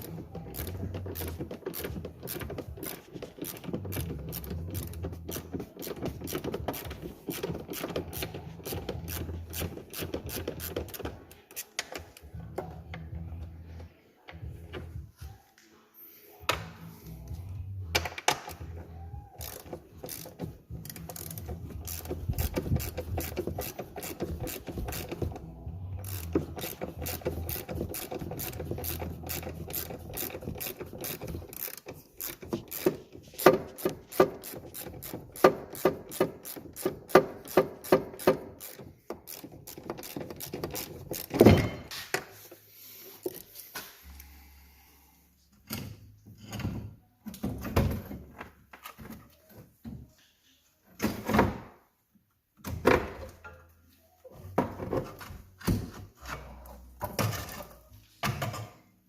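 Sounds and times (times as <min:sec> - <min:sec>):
ratchet wrench clicking: 0:00.0 - 0:11.7, 0:19.4 - 0:41.4.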